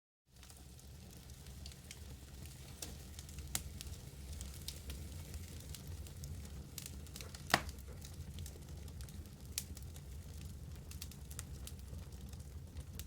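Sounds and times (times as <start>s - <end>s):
low steady fire rumble: 0.3s - 13.0s
wood fire crackling and popping: 0.3s - 13.0s.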